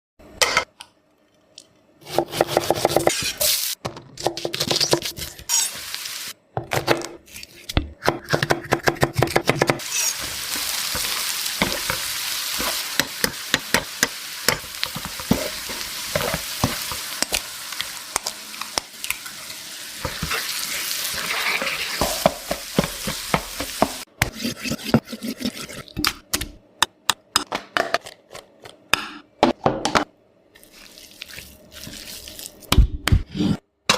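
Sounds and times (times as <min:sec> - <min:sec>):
food sizzling in hot pan: 0:05.5 - 0:06.4, 0:09.8 - 0:24.1
spatula tapping and scraping: 0:07.7 - 0:19.2, 0:21.1 - 0:30.1.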